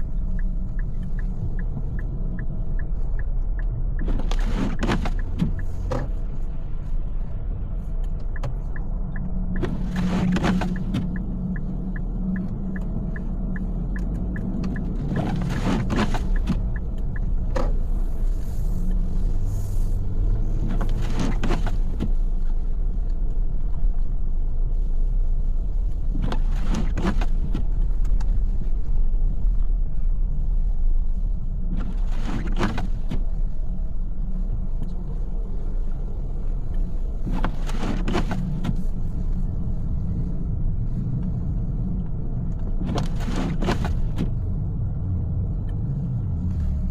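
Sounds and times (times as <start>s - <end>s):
car engine and tyres rumbling: 0.0s - 46.9s.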